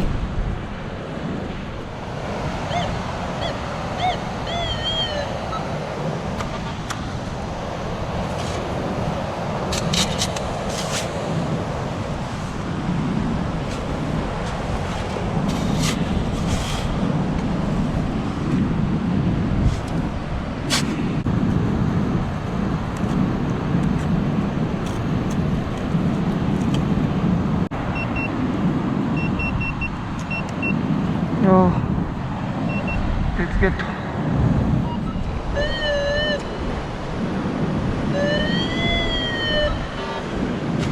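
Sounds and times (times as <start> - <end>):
metal detector beeps: 27.9 - 28.4, 29.2 - 30.8, 32.7 - 33.0, 34.8 - 36.5, 38.1 - 40.2.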